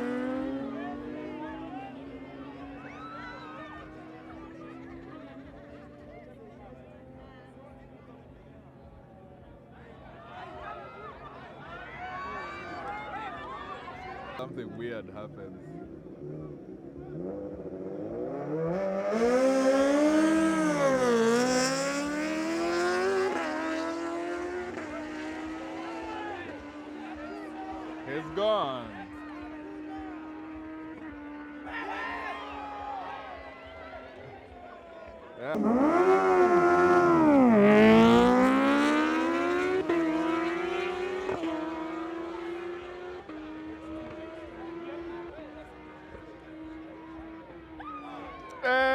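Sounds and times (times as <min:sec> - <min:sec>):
motorcycle engines accelerating: 0:00.0 - 0:48.9.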